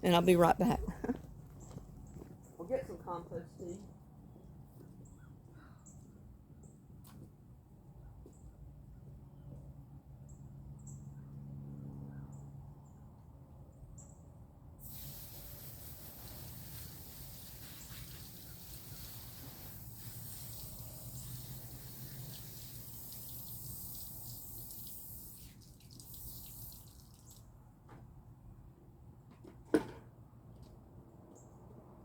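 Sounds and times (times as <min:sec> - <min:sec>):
faint running water: 0:14.9 - 0:27.5.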